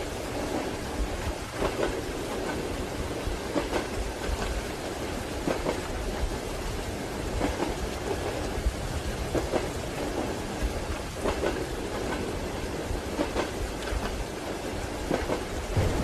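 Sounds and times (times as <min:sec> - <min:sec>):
rain on a train window: 0:00.0 - 0:16.0
train wheels clickety-clack: 0:00.0 - 0:16.0
low rumble: 0:15.7 - 0:16.0.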